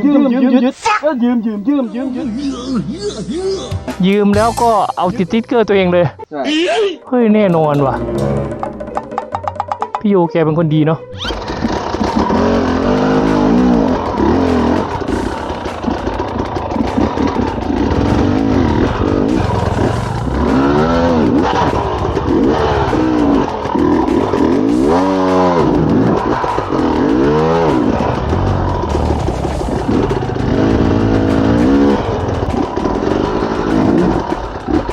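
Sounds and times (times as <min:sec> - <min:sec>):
dirt bike engine revving: 0:11.1 - 0:34.9.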